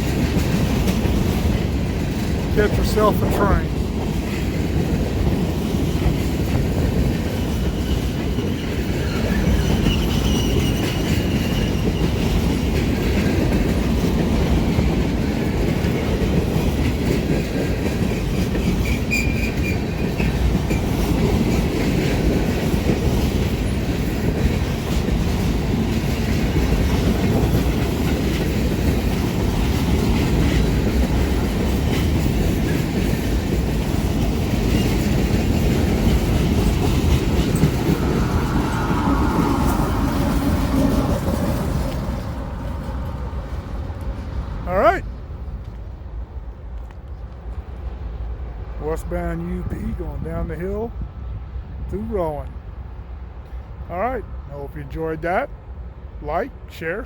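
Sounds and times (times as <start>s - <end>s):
clickety-clack over rail joints: 0.0s - 57.0s
freight cars rumbling on rails: 0.0s - 57.0s
faint high wheel squeal: 7.7s - 12.2s, 18.8s - 19.8s.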